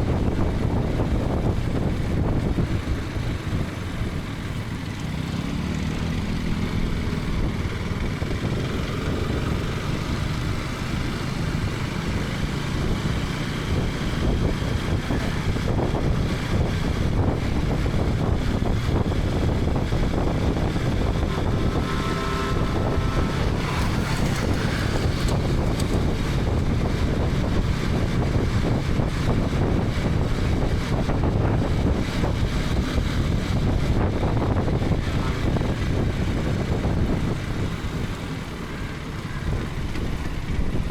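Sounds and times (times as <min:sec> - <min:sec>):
wind on microphone: 0:00.0 - 0:04.7, 0:05.9 - 0:40.9
motorcycle engine running: 0:00.0 - 0:40.9
short tone: 0:21.1 - 0:25.1.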